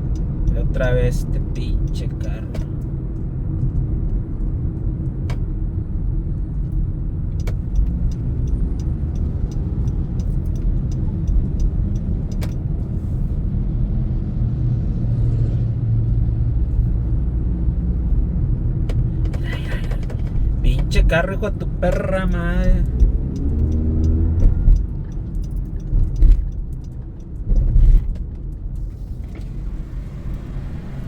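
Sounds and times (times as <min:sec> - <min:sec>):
car engine and road rumble: 0:00.0 - 0:31.0
sharp clicks: 0:22.3 - 0:28.6.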